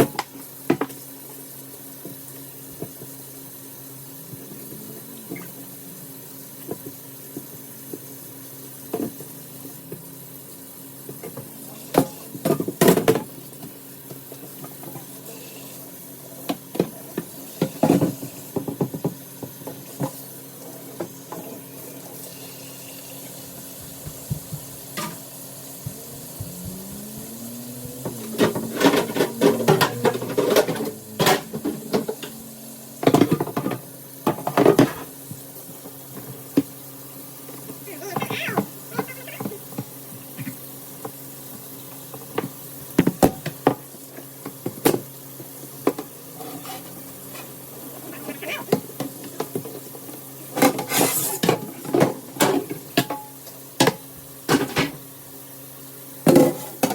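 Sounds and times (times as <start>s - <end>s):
steady low hum: 23.9s - 33.6s
dishes clinking and clattering: 27.9s - 35.3s, 45.8s - 55.0s.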